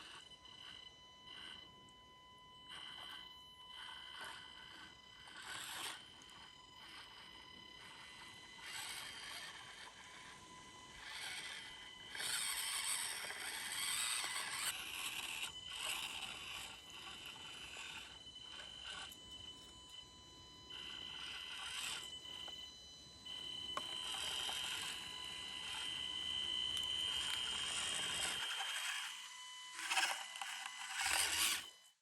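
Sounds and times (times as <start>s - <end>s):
electric motor and gears whining: 0.0s - 32.0s
tyres scraping over rough ground: 11.0s - 19.0s, 27.1s - 31.6s.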